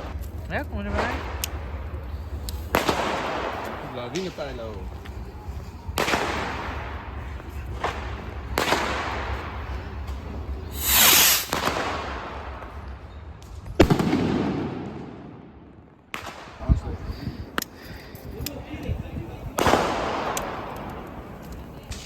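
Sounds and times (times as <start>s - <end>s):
echoing firework bangs: 0.0s - 16.8s, 19.5s - 22.0s
rocket launching hiss: 10.7s - 12.5s.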